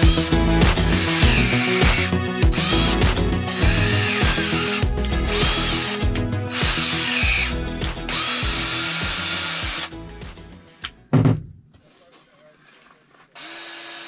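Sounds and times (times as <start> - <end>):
power drill whining: 0.0 - 10.0, 13.3 - 14.0
background music: 0.0 - 11.7.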